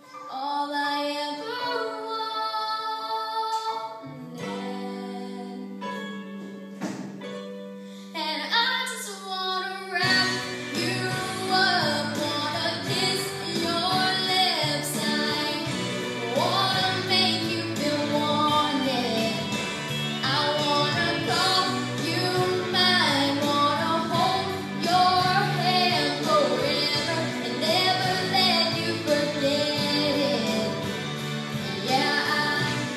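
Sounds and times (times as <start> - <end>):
woman singing: 0.0 - 6.0, 8.2 - 19.6, 20.2 - 31.0, 31.6 - 32.9
instrumental accompaniment with bass: 10.0 - 32.9.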